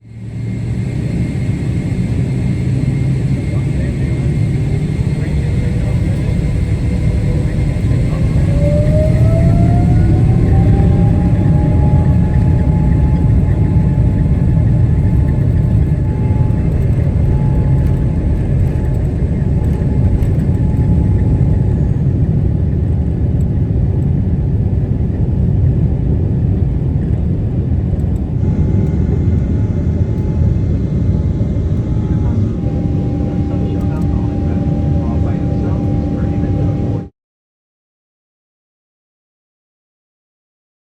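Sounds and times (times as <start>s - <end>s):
jet engine rumble and whine: 0.0s - 37.1s.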